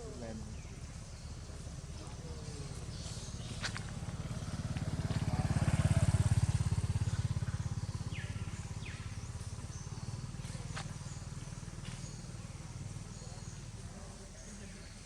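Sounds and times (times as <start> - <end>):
small vehicle engine passing by: 0.0 - 15.0.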